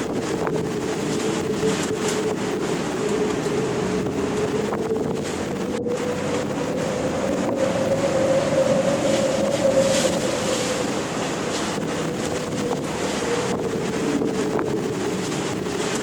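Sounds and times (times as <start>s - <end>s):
wind over ocean waves: 0.0s - 16.0s
steady whistle-like tone: 1.4s - 14.1s.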